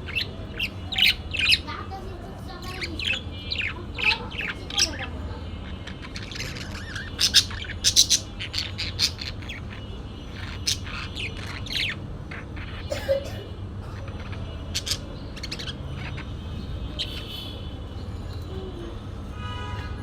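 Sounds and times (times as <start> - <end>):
parakeet squawks and chirps: 0.0 - 13.1, 13.8 - 20.0.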